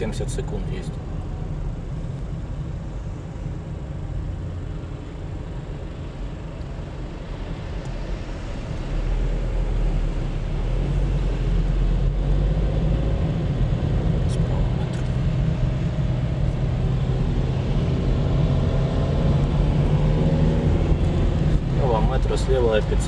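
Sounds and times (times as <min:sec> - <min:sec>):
car engine and tyre noise: 0:00.0 - 0:23.0.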